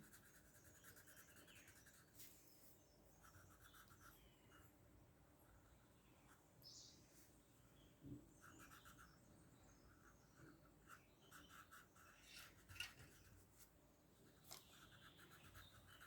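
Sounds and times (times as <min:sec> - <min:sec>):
colouring strokes on paper: 0:00.0 - 0:02.6, 0:09.9 - 0:13.7, 0:14.3 - 0:16.0.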